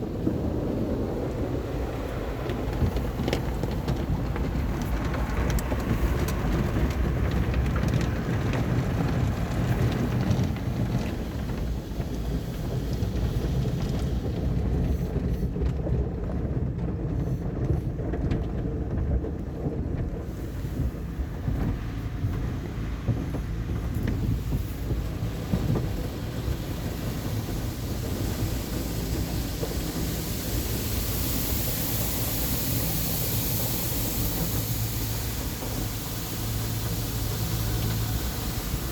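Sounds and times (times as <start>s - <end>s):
water spraying on car: 0.0s - 16.2s, 17.0s - 38.9s
low machinery rumble: 0.0s - 38.9s
bright hiss: 23.9s - 38.9s.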